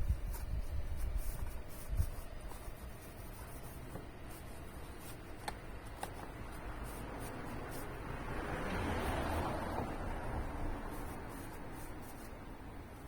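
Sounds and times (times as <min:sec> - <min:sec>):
light scratching: 0:00.0 - 0:09.9.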